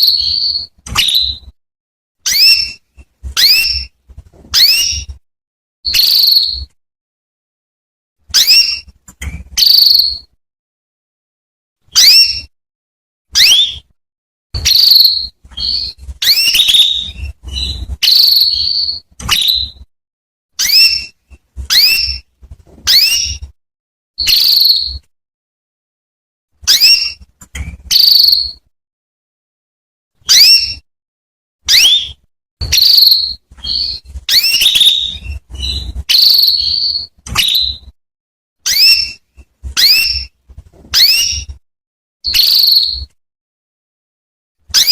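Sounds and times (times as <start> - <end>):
canary chirping and trilling: 0.0 - 1.6, 2.2 - 5.2, 5.8 - 6.8, 8.2 - 10.4, 11.8 - 12.6, 13.3 - 14.0, 14.6 - 19.9, 20.6 - 23.6, 24.2 - 25.1, 26.6 - 28.7, 30.2 - 30.9, 31.6 - 38.0, 38.6 - 41.6, 42.2 - 43.2, 44.7 - 44.9.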